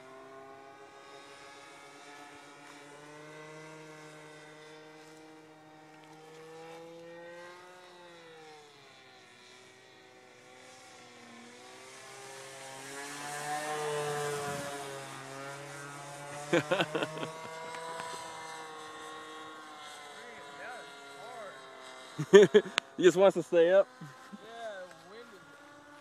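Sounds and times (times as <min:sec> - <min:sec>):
model plane engine in flight: 0:00.0 - 0:26.0.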